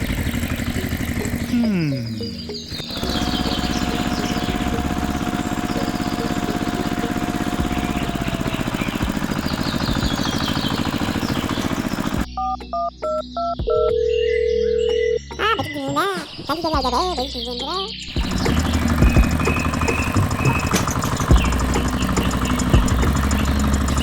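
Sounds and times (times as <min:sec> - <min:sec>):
high chirps: 0:00.0 - 0:12.3, 0:15.3 - 0:23.4
tractor engine chugging: 0:00.0 - 0:12.3, 0:18.1 - 0:24.0.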